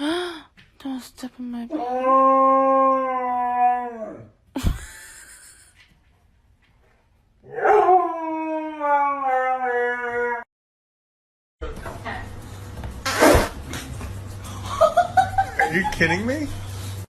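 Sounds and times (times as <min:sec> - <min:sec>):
dog howling: 0:01.7 - 0:04.3, 0:07.4 - 0:10.5.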